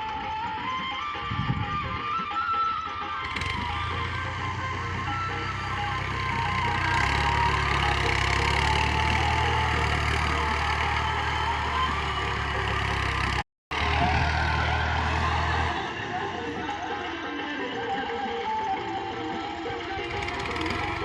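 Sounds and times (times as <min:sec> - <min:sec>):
tractor diesel engine running: 0:03.2 - 0:17.5, 0:18.6 - 0:21.0.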